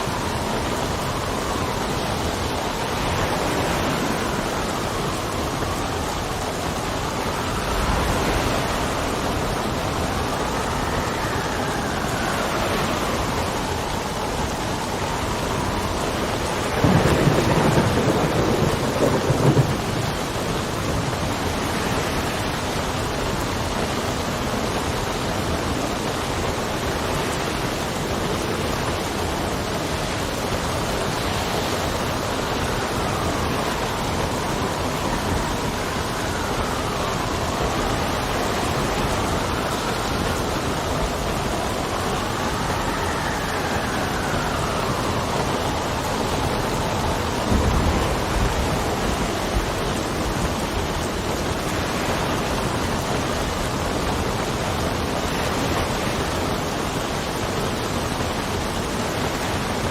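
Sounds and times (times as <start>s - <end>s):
steady rain: 0.0s - 59.9s
wind whistling: 0.0s - 59.9s
thunder burst: 16.7s - 21.1s, 47.2s - 50.2s.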